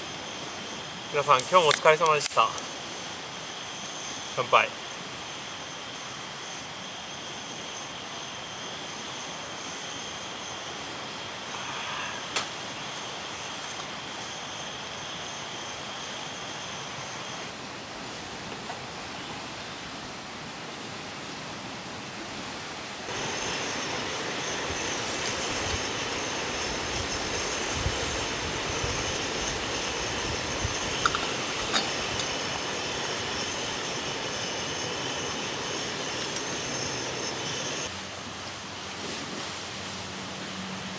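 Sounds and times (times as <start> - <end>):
wind hiss: 0.0 - 17.5, 23.0 - 38.0
gusts buffeting microphone: 23.1 - 37.9
high-pitched whine: 23.1 - 37.9.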